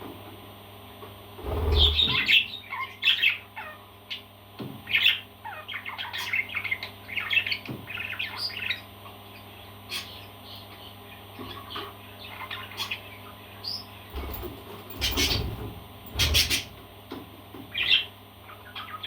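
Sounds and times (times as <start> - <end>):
parrot squawking: 1.7 - 3.9, 4.9 - 8.8, 16.2 - 16.7, 17.8 - 19.0.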